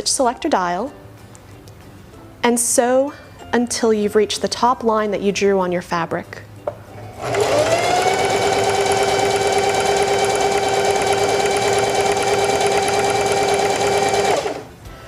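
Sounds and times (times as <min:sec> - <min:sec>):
sewing machine stitching: 0:07.1 - 0:14.7.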